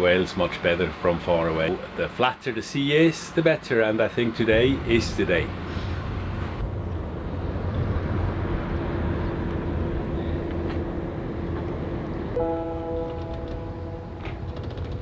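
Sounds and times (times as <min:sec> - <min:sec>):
boat engine droning: 0:04.5 - 0:15.0
steady hum note: 0:09.8 - 0:15.0.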